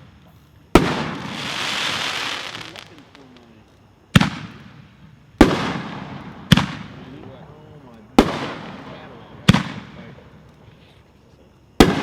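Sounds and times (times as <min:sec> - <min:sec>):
firework shells booming: 0:00.7 - 0:07.3, 0:08.1 - 0:10.1, 0:11.8 - 0:12.0
firework hiss: 0:00.8 - 0:03.6.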